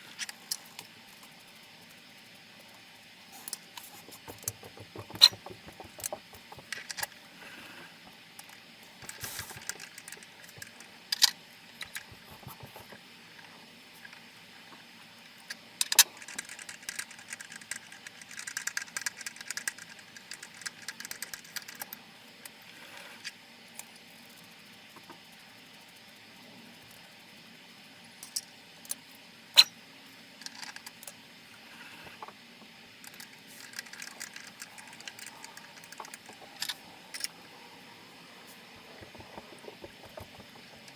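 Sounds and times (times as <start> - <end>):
sharp knocks: 3.8 - 6.7.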